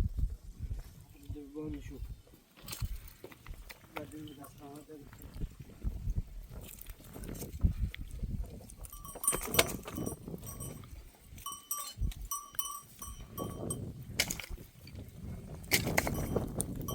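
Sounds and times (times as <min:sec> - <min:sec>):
animal bells clinking: 0:04.0 - 0:05.0, 0:08.6 - 0:14.2, 0:15.7 - 0:16.9.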